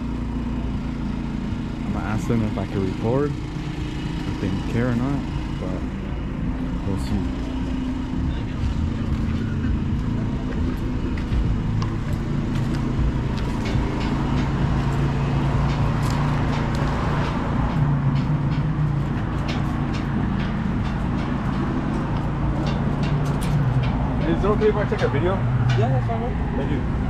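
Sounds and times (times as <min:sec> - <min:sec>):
engine humming: 0:00.0 - 0:27.0.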